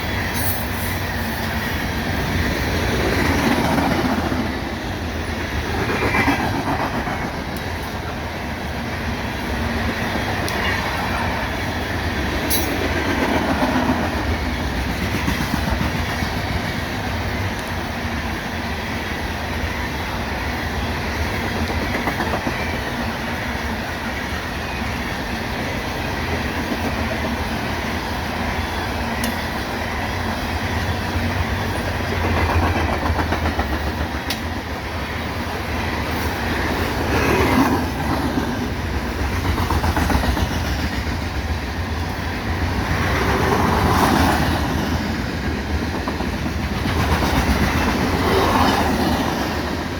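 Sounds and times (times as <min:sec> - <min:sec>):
train cars rumbling past: 0:00.0 - 0:49.9
wheels clicking over rail joints: 0:21.3 - 0:23.2, 0:30.7 - 0:49.9.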